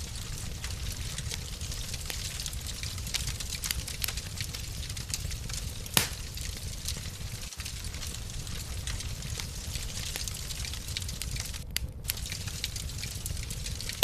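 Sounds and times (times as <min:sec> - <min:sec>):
wood fire crackling: 0:00.0 - 0:14.0
loud fire pop: 0:05.9 - 0:06.4.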